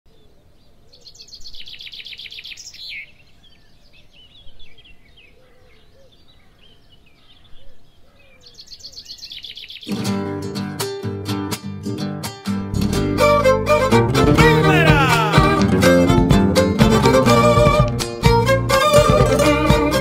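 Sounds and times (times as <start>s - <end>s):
birds chirping: 0.1s - 9.9s
loud folk dance music: 12.8s - 20.0s.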